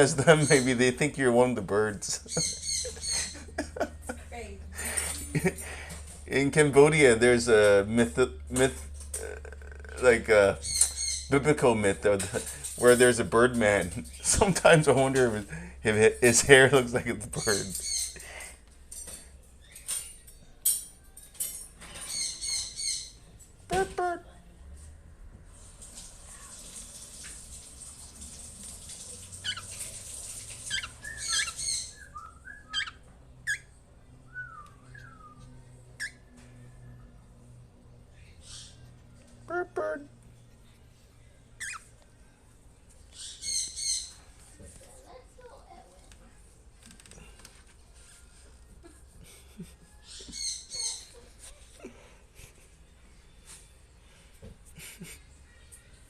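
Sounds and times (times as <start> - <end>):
pet birds chirping: 0.2 - 0.9, 2.1 - 4.0, 10.0 - 11.8, 17.2 - 18.5, 21.8 - 24.2, 29.4 - 36.4, 38.2 - 40.1, 41.6 - 42.0, 43.0 - 44.4, 49.9 - 51.8
whistled bird calls: 30.7 - 33.7, 34.3 - 36.2.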